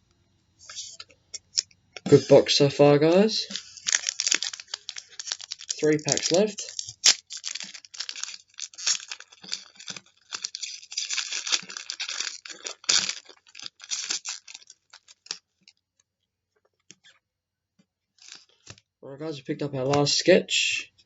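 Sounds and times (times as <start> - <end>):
wrapper tearing and crinkling: 3.1 - 15.5, 18.2 - 18.8.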